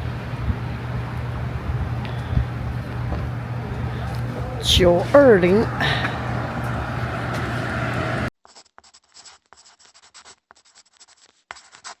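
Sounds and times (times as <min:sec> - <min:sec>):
low hum: 0:00.0 - 0:08.3.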